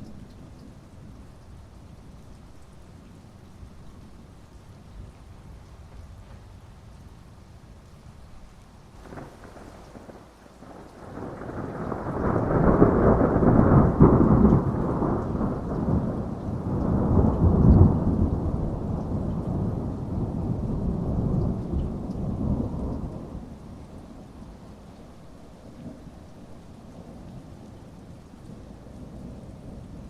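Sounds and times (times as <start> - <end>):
heavy rain: 0.0 - 30.0
thunder rolling: 9.0 - 23.4.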